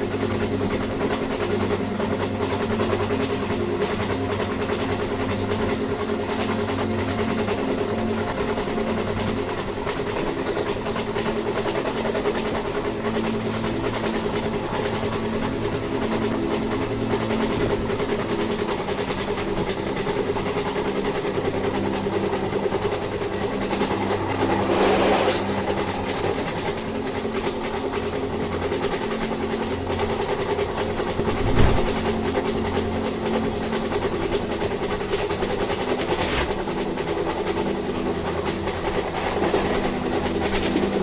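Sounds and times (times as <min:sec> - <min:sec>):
faint rail clatter: 0:00.0 - 0:41.0
train rumbling along track: 0:00.0 - 0:41.0
low hum: 0:31.0 - 0:33.6.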